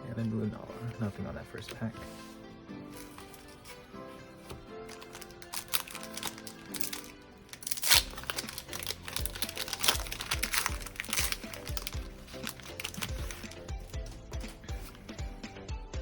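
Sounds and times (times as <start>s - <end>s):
background music with steady beat: 0.0s - 16.0s
foil wrapper crinkling and tearing: 4.8s - 15.2s.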